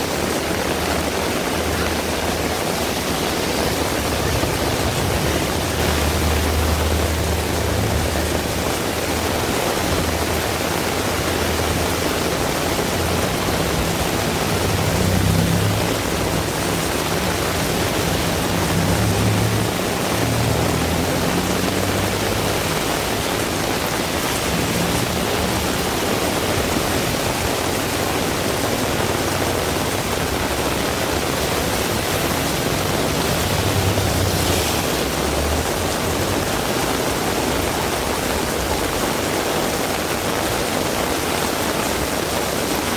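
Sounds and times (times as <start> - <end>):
low rumbles: 0.0 - 39.0
heavy rain hiss: 0.0 - 42.9.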